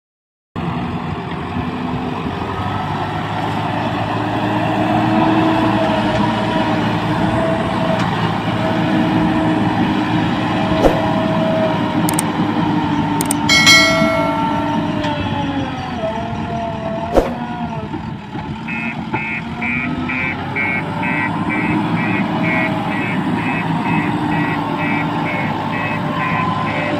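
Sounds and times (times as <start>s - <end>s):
heavy diesel engine running: 0.6s - 26.9s
reversing alarm beeping: 18.7s - 26.9s.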